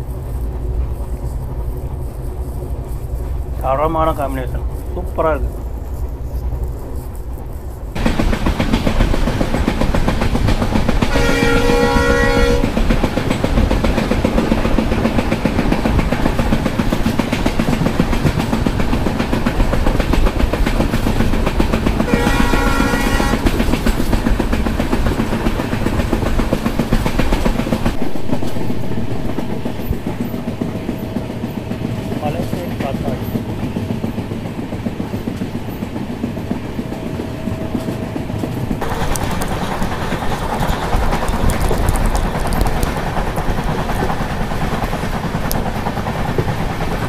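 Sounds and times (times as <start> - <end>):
train wheels on track: 0.0 - 47.0
locomotive horn blasts: 11.1 - 12.8, 22.0 - 23.6.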